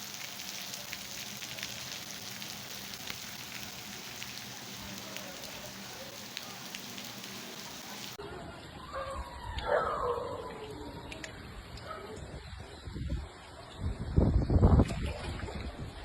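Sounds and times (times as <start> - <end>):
heavy rain hissing: 0.0 - 8.2
rain drops ticking: 0.0 - 8.2.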